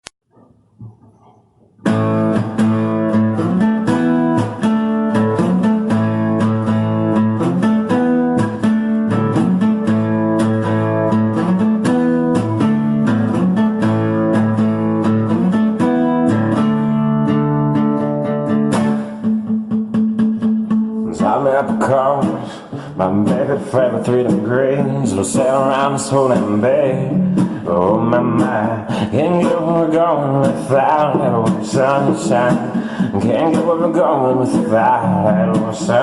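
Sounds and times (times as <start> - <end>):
guitar plucked and strummed: 1.8 - 36.0.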